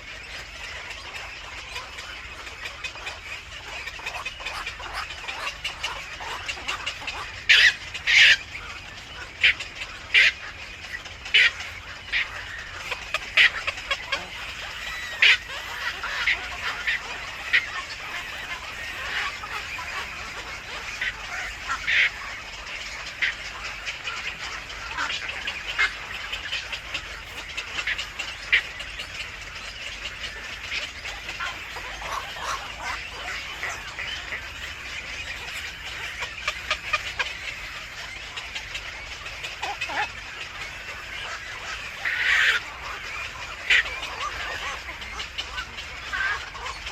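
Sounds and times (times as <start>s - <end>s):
birds calling high-pitched notes: 0.0s - 46.9s.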